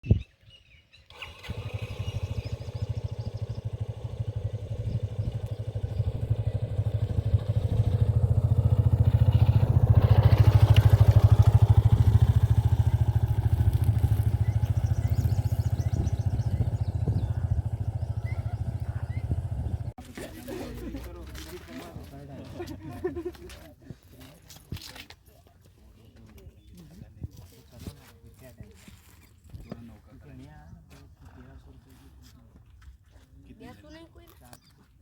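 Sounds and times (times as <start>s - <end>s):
motorcycle engine running: 1.1s - 22.2s.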